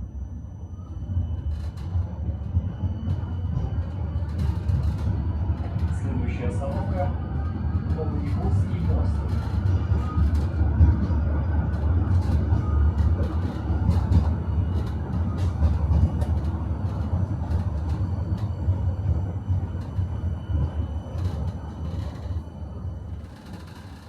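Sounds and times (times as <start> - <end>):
tram rumbling: 0.0 - 24.0.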